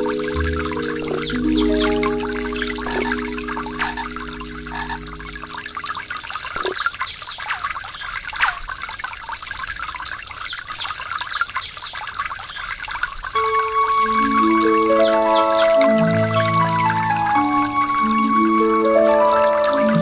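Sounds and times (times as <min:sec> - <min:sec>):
soft music with held notes: 0:00.0 - 0:06.7, 0:13.4 - 0:20.0
water flowing and splashing: 0:00.0 - 0:20.0.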